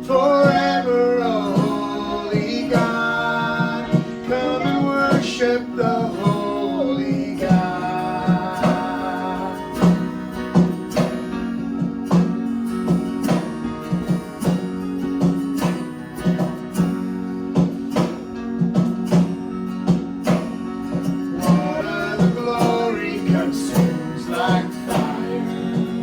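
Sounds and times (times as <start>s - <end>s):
band playing: 0.0s - 26.0s
strummed acoustic guitar: 0.0s - 26.0s
person singing a held word: 21.4s - 26.0s.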